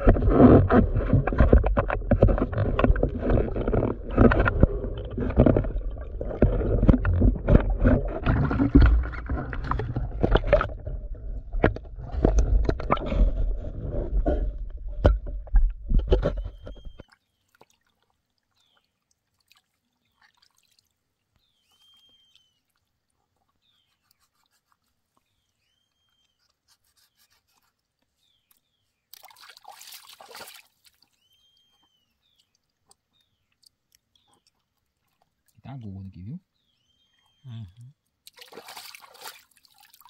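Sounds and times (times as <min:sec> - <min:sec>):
low rumble on microphone: 0:00.0 - 0:17.0
rustling noise: 0:00.0 - 0:17.0
whistled bird call: 0:21.4 - 0:22.6, 0:25.6 - 0:26.4, 0:31.1 - 0:32.2.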